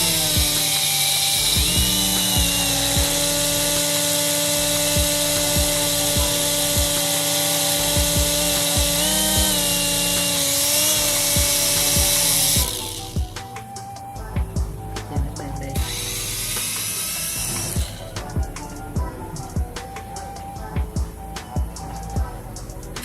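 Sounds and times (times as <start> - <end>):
toy helicopter electric motor whining: 0.0 - 13.9, 15.6 - 18.7.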